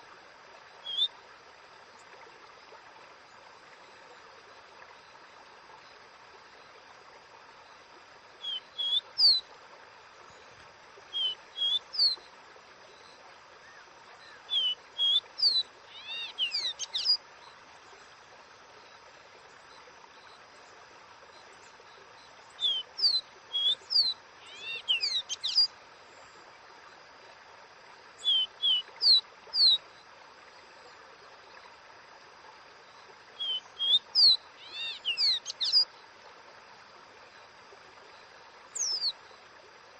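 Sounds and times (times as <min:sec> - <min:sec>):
soft hiss: 0:00.0 - 0:39.9
bird whistling song: 0:00.8 - 0:01.1, 0:08.4 - 0:09.4, 0:11.1 - 0:12.2, 0:14.3 - 0:17.2, 0:22.6 - 0:25.7, 0:28.2 - 0:29.8, 0:33.4 - 0:35.9, 0:38.7 - 0:39.2.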